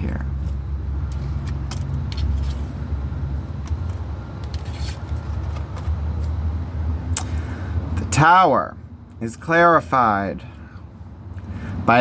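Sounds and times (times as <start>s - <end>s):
steady low rumble: 0.0s - 12.0s
cards being shuffled: 0.3s - 2.9s, 3.6s - 6.4s.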